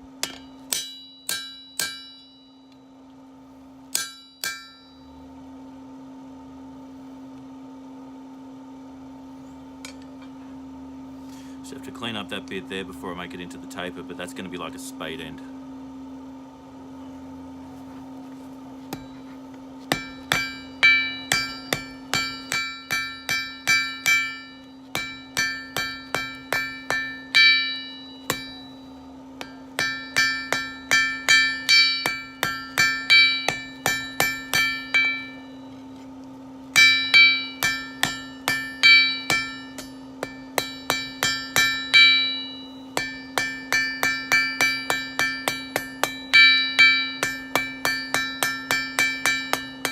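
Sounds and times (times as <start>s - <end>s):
steady hum: 0.0s - 49.9s
hammer striking steel on anvil: 0.2s - 2.8s, 3.9s - 5.2s, 9.8s - 10.2s, 18.9s - 35.8s, 36.7s - 49.9s.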